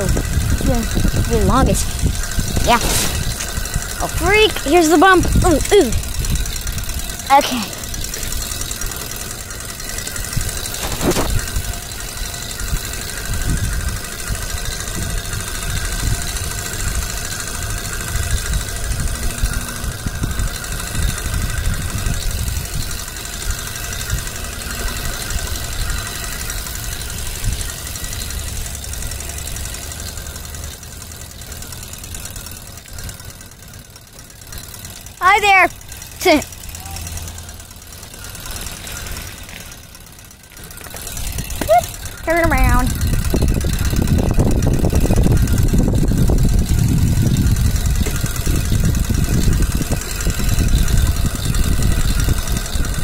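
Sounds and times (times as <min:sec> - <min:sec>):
small vehicle engine running: 0:00.0 - 0:53.0.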